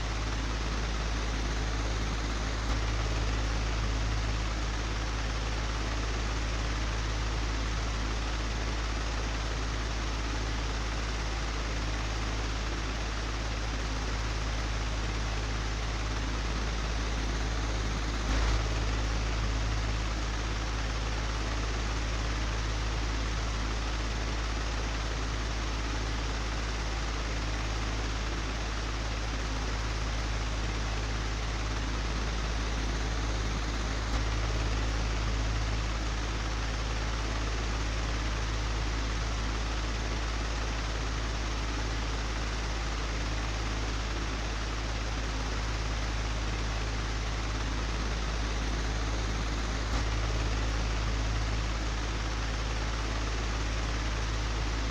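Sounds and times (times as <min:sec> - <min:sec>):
electric fan humming with air rush: 0:15.6 - 0:54.9.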